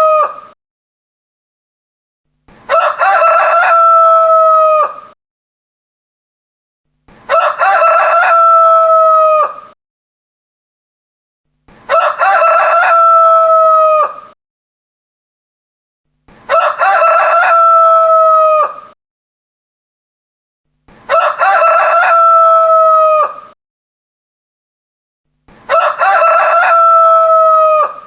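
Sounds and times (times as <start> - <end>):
rooster crowing: 0.0 - 0.4, 2.7 - 5.2, 7.3 - 9.8, 11.9 - 14.4, 16.5 - 19.0, 21.1 - 23.6, 25.7 - 28.0.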